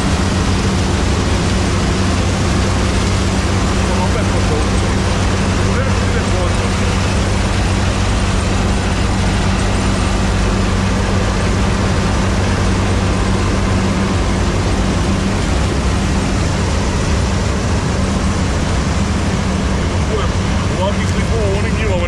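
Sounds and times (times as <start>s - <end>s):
diesel engine running steadily: 0.0s - 22.0s.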